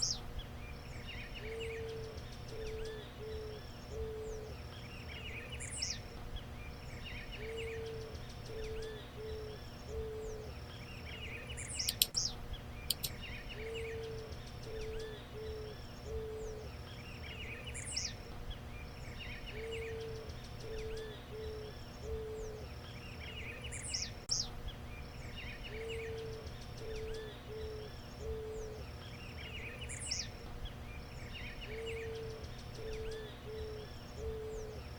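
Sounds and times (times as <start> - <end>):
birds chirping and whistling: 0.0 - 2.0, 11.1 - 34.8
dove cooing: 1.6 - 4.6, 7.4 - 10.5, 12.9 - 16.8, 19.7 - 22.8, 25.7 - 28.8, 31.8 - 34.9
sharp clicks: 11.8 - 12.3, 12.9 - 13.2.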